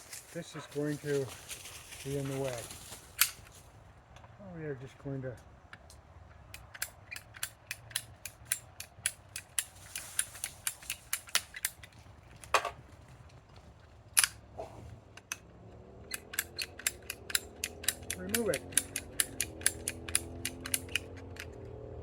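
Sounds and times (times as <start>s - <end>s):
ratchet tool clicking: 6.5s - 11.8s, 16.1s - 21.5s.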